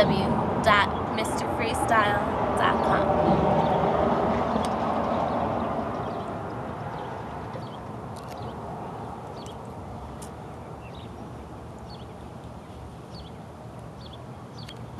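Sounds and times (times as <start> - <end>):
low outdoor rumble: 0.0 - 14.9
small birds chirping: 4.5 - 14.9.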